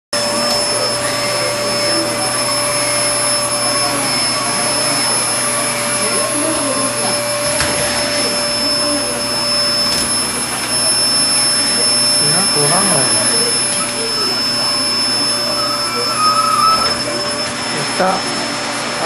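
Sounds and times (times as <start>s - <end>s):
vacuum cleaner whining: 0.2s - 19.0s.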